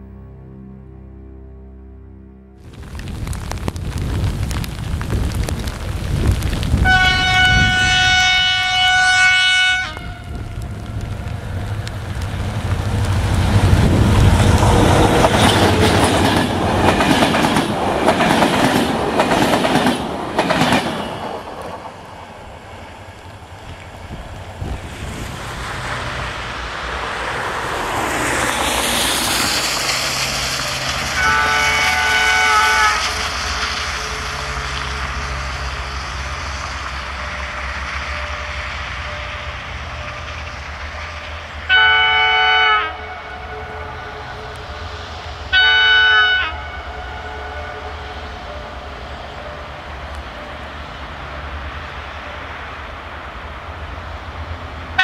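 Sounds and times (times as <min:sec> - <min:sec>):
train engine noise: 0:02.6 - 0:55.0
locomotive horn: 0:06.8 - 0:10.8, 0:30.6 - 0:40.3, 0:40.9 - 0:50.5.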